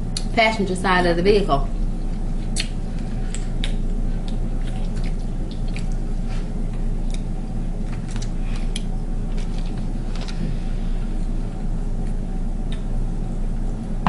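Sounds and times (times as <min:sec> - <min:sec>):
steady low hum: 0:00.0 - 0:14.0
shellfish pulled apart and chewed: 0:07.0 - 0:10.4.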